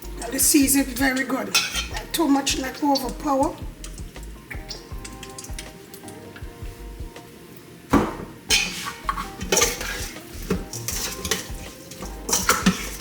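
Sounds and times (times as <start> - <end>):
utensil scraping against bowl: 1.5 - 2.1, 8.5 - 13.0.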